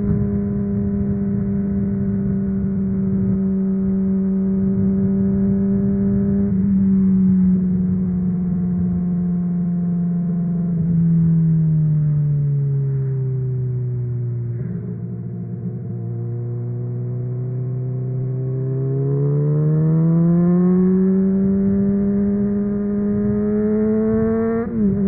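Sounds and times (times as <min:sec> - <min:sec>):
motorcycle engine at high revs: 0:00.0 - 0:11.0, 0:15.6 - 0:25.0.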